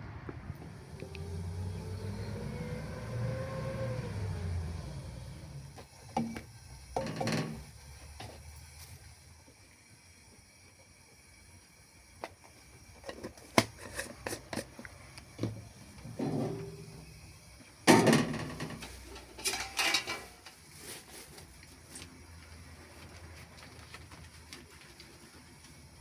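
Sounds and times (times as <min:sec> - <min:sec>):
objects knocking and clattering: 0:06.1 - 0:08.4, 0:13.0 - 0:17.0, 0:17.9 - 0:20.6.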